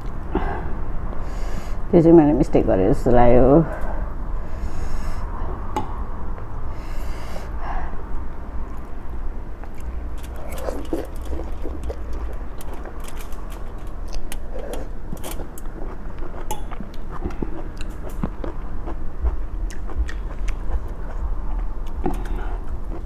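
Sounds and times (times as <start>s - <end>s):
chewing and biting: 9.6s - 23.0s.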